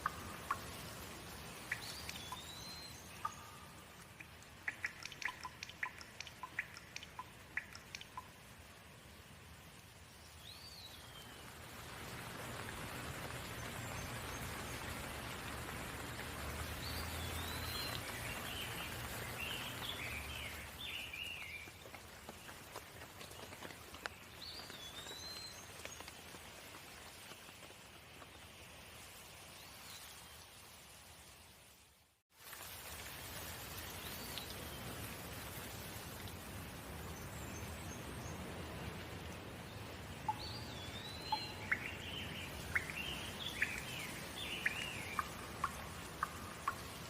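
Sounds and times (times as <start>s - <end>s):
steady rain falling: 0.0s - 47.0s
bird chirping: 1.6s - 8.4s, 40.2s - 47.0s.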